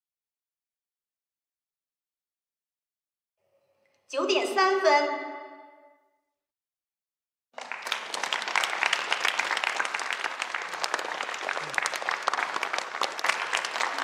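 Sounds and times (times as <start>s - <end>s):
large audience applauding: 7.6s - 14.0s.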